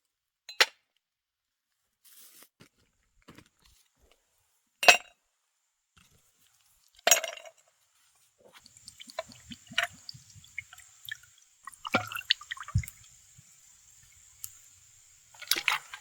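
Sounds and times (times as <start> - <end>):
wet clicks and liquid sounds: 8.5 - 16.0.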